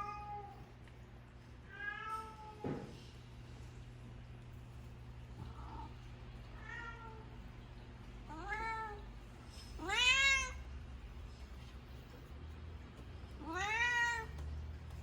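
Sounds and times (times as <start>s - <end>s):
cat meowing: 9.8s - 10.6s, 13.4s - 14.3s.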